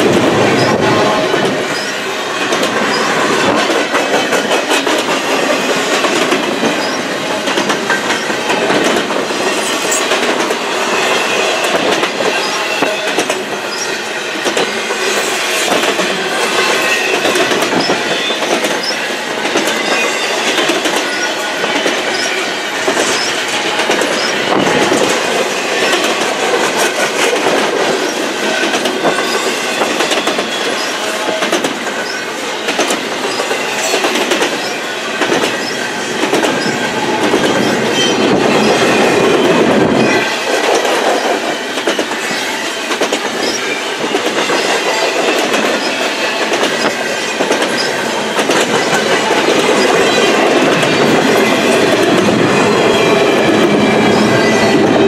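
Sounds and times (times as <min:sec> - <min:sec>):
train wheels clattering over rail joints: 0:00.0 - 0:55.0
wheel squeals: 0:00.5 - 0:02.0, 0:02.8 - 0:04.5, 0:06.7 - 0:07.2, 0:12.3 - 0:25.1, 0:28.0 - 0:40.4, 0:41.0 - 0:51.8.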